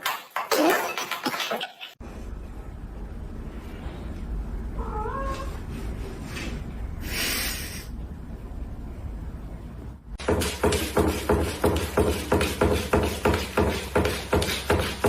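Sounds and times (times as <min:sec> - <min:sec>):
steady low hum: 0:02.0 - 0:14.4
cat meowing: 0:04.8 - 0:05.6.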